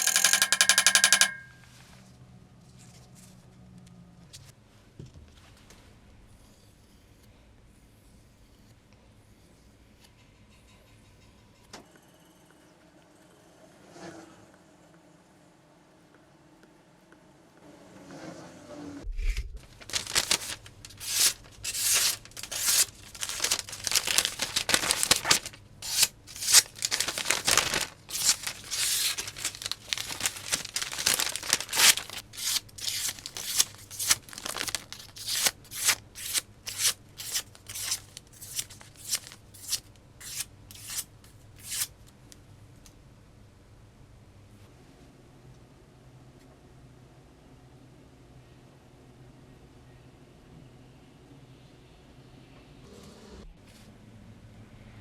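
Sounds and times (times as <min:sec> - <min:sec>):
knife slicing with tearing cuts: 0:25.8 - 0:41.9.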